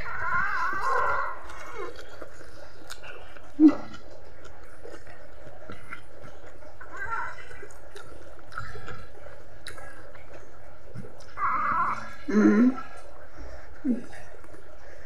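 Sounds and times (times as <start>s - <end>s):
person chewing leafy greens: 0.0s - 15.0s
wet mouth clicks and smacks: 2.0s - 6.1s.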